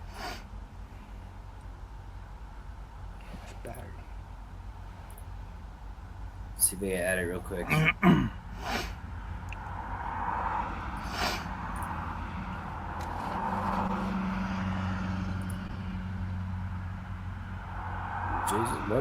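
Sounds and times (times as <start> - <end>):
road noise hiss: 0.0 - 19.0
vehicle engine humming: 0.0 - 19.0
faint clicks: 9.4 - 9.7, 15.3 - 15.7.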